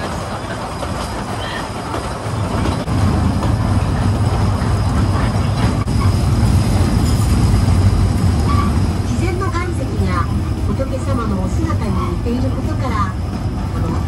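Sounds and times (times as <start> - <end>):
train cars rumbling on track: 0.0 - 14.0.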